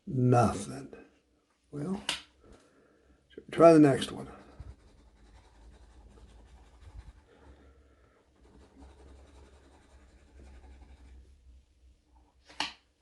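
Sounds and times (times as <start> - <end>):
scratching lottery ticket: 3.8 - 11.3.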